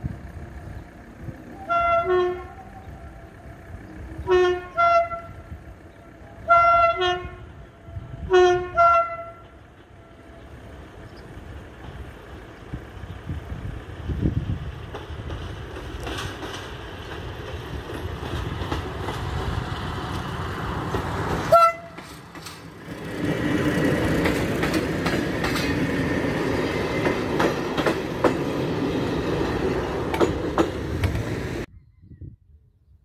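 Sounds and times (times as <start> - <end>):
passenger train running: 0.0 - 31.7
train horn blast: 1.6 - 3.3, 4.2 - 5.5, 6.3 - 9.6, 21.5 - 22.0
wheels clacking over rail joints: 8.8 - 31.7.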